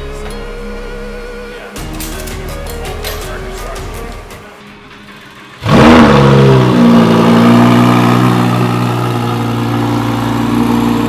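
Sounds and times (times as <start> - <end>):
sports car engine starting: 4.9 - 11.0.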